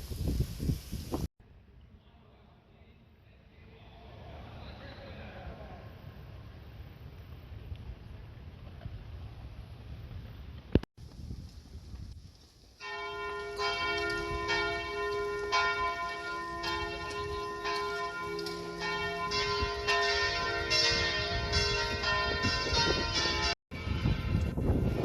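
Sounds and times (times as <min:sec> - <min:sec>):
bells ringing different notes: 0:12.8 - 0:25.0.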